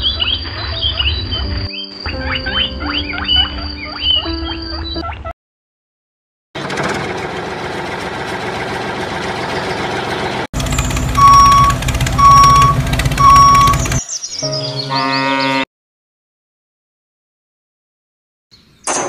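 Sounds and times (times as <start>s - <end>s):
rough vehicle engine running: 6.6s - 14.0s
truck engine running steadily: 6.6s - 14.0s
reversing alarm beeps: 11.2s - 14.0s.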